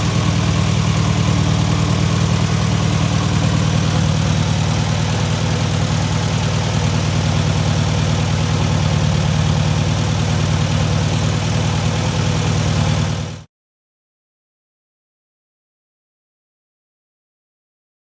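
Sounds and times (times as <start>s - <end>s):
air-cooled engine running: 0.0s - 13.4s.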